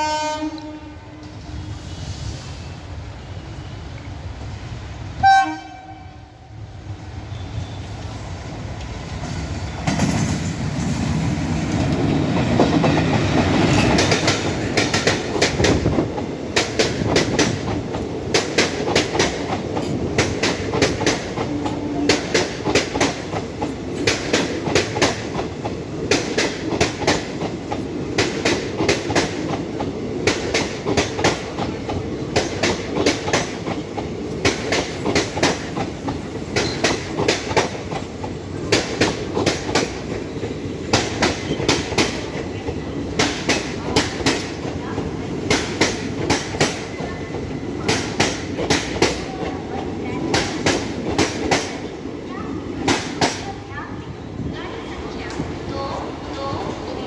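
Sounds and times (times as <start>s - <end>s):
train horn: 0.0s - 1.4s, 5.2s - 6.5s
train rumble: 0.0s - 57.0s
wheels clacking over rail joints: 11.6s - 53.7s.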